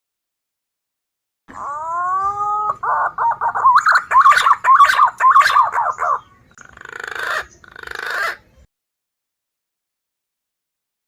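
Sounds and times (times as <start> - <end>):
harsh rasping bird calls: 1.5 - 8.7
wavering whistled bird calls: 1.6 - 8.4.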